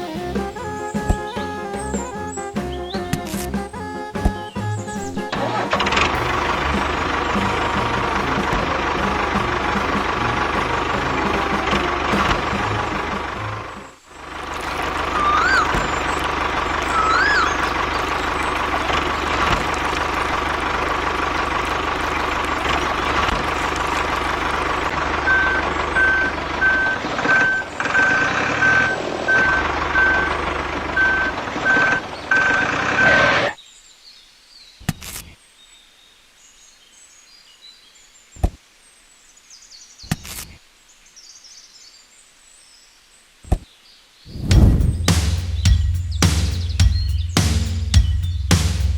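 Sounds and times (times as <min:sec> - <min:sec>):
faint bird chirps: 0:00.0 - 0:05.3, 0:13.8 - 0:20.0, 0:25.3 - 0:48.9
tractor engine drone: 0:00.0 - 0:33.6, 0:44.4 - 0:48.9
high reversing beep: 0:16.8 - 0:17.6, 0:25.2 - 0:30.4.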